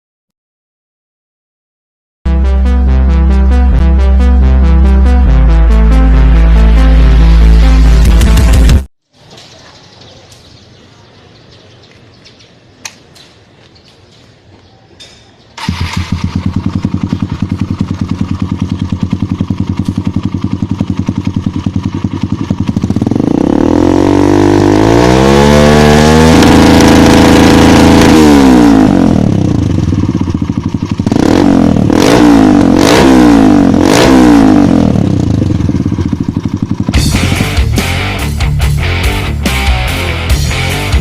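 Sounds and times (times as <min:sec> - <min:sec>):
motorcycle engine idling and revving: 0:02.3 - 0:08.9, 0:15.0 - 0:41.0.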